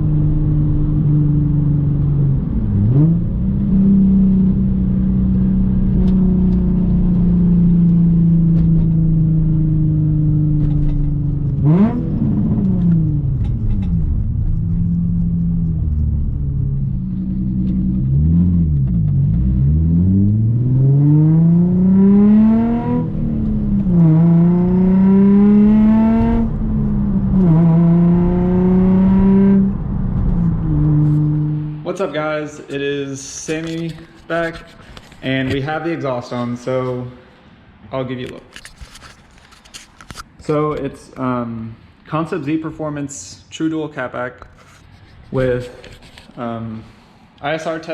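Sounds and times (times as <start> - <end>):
car engine revving: 0.0 - 32.1.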